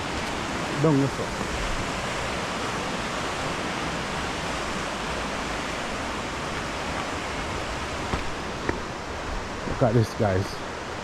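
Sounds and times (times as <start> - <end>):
river water rushing: 0.0 - 9.7.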